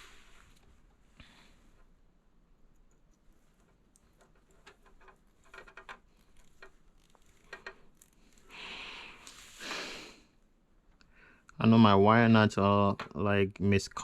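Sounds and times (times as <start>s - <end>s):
wires and wire nuts clicking: 2.6s - 8.5s
breathy noise: 8.0s - 10.4s.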